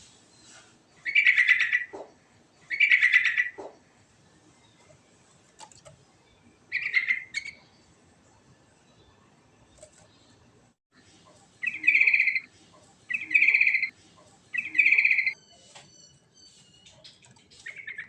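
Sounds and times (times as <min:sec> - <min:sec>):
bird singing bubbling phrases: 0:06.2 - 0:07.9, 0:11.6 - 0:12.5, 0:13.1 - 0:13.9, 0:14.5 - 0:15.4.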